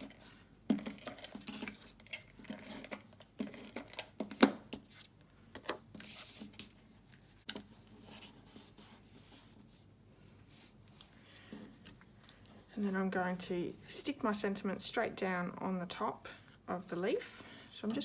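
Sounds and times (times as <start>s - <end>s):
paper rustling: 5.9s - 9.8s.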